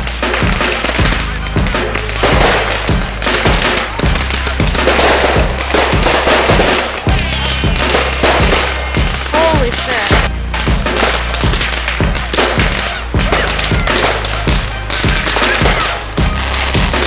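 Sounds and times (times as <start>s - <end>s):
fireworks crackling: 0.0s - 17.0s
music with steady beat: 0.0s - 17.0s
falling firework whistle: 2.1s - 9.3s.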